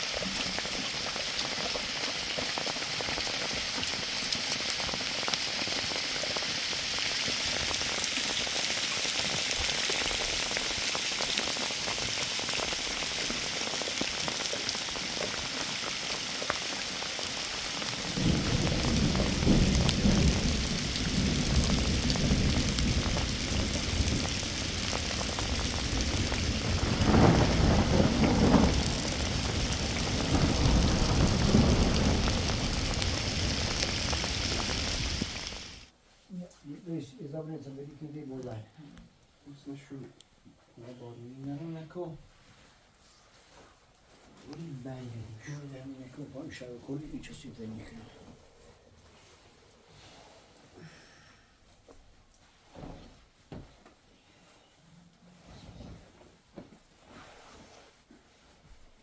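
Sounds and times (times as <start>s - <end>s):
heavy rain falling: 0.0s - 35.9s
low rumbling: 18.0s - 35.9s.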